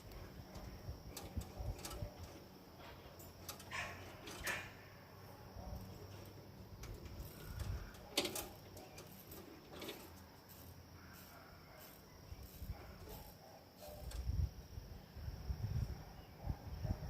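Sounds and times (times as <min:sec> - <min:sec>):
faint clicks and knocks: 0:00.0 - 0:04.7, 0:05.9 - 0:10.3.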